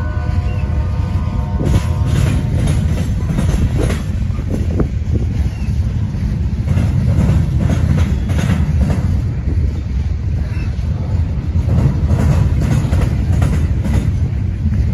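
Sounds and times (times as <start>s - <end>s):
wheels rumbling on rail: 0.0s - 14.9s
wheels clacking over rail joints: 0.4s - 14.9s.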